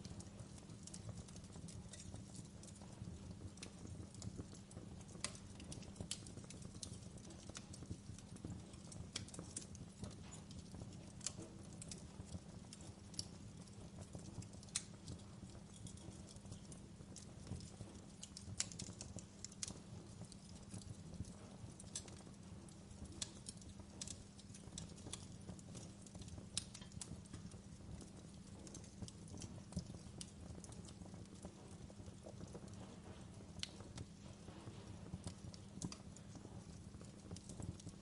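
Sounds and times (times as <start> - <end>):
low rumble of flames: 0.0 - 38.0
wood fire crackling: 0.0 - 38.0
sharp pops and snaps: 14.0 - 22.3, 22.9 - 31.6.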